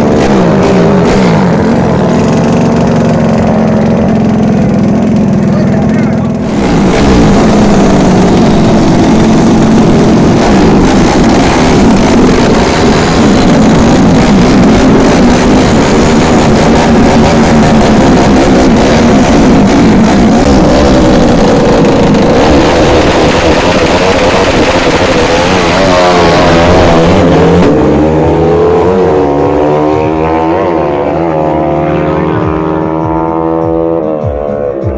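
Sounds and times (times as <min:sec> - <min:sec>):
motorcycle engines revving: 0:00.0 - 0:34.9.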